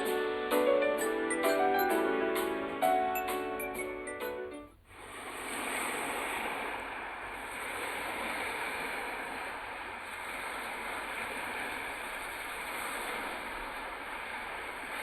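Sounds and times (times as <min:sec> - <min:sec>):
lake waves rushing: 0:04.9 - 0:15.0.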